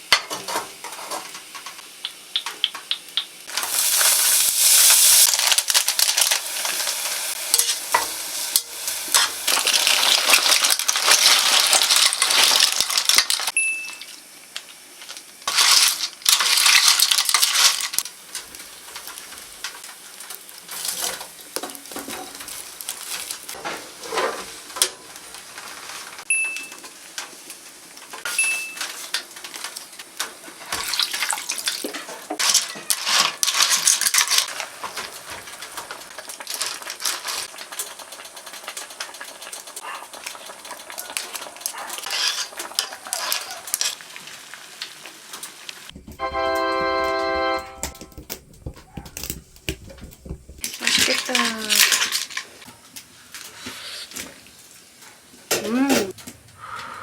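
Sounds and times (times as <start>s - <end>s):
broth sizzling in a pan: 0.0s - 46.0s, 50.2s - 55.8s
utensils clinking and scraping pan: 0.1s - 1.8s, 7.5s - 13.6s, 15.5s - 25.0s, 28.2s - 44.0s, 48.8s - 54.3s.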